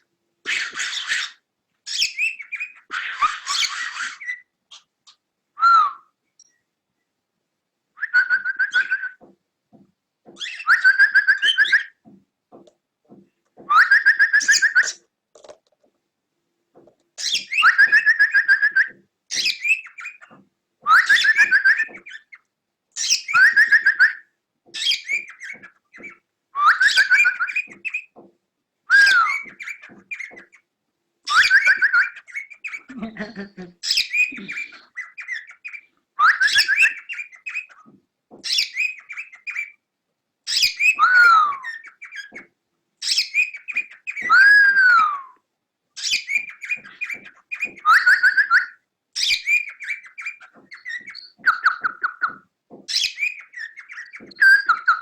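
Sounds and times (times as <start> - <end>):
cockatiel whistled call: 8.0 - 9.2, 10.4 - 12.0, 13.6 - 15.0, 17.2 - 20.3, 20.9 - 22.4, 23.0 - 28.1, 28.9 - 30.6, 31.3 - 32.9, 33.8 - 37.8, 38.5 - 39.7, 40.5 - 45.4, 46.0 - 55.0.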